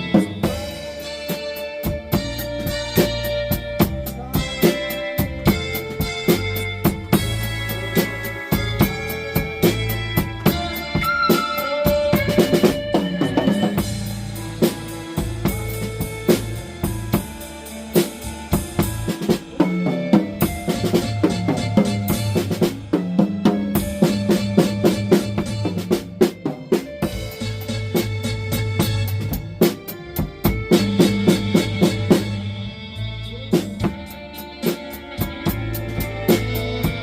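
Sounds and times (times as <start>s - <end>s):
blues backing track: 0.0s - 37.0s
drum kit playing: 0.0s - 37.0s
sustained bass line: 0.0s - 37.0s.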